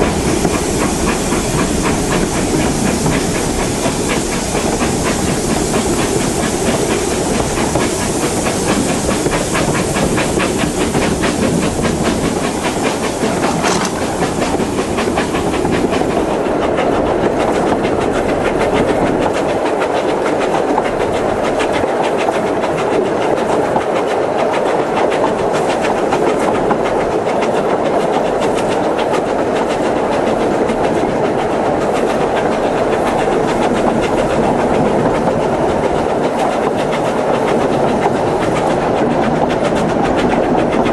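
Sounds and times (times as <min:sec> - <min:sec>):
wheels clicking over rail joints: 0:00.0 - 0:16.2
steam hiss: 0:00.0 - 0:40.4
steam train carriage rumble: 0:00.0 - 0:40.9.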